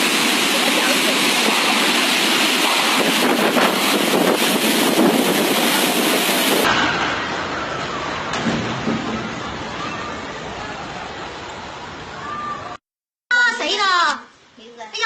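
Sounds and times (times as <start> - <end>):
strong storm wind rushing: 0.0 - 11.1
wind noise on microphone: 2.5 - 6.8.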